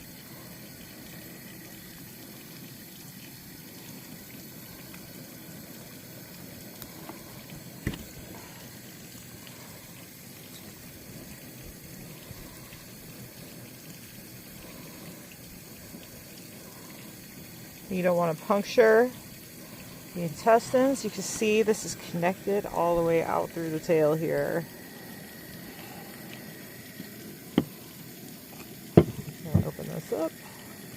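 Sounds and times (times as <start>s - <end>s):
running water: 0.0s - 30.9s.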